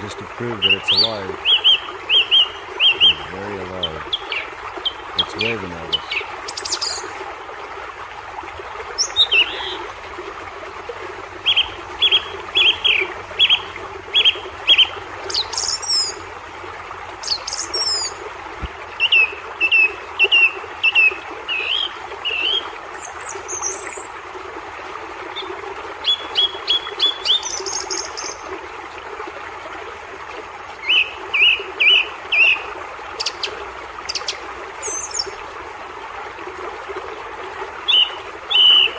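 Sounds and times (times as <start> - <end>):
songbirds chirping: 0.0 - 7.2, 8.2 - 24.2, 25.3 - 28.4
outdoor background hiss: 0.0 - 38.6
sharp bird calls: 9.0 - 9.9, 11.3 - 16.2.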